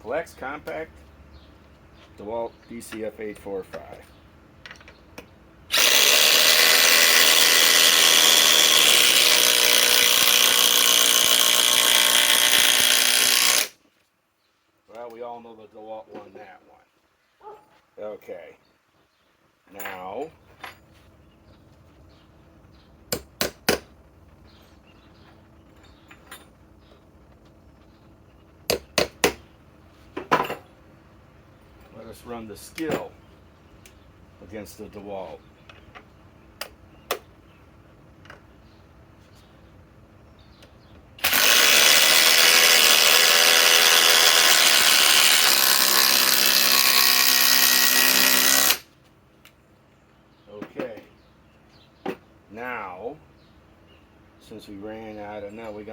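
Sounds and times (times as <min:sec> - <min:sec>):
impact drivers driving screws: 0:05.7 - 0:13.8, 0:41.2 - 0:48.9
sharp knocks of hard objects: 0:23.1 - 0:24.0, 0:28.7 - 0:29.5, 0:52.0 - 0:52.3.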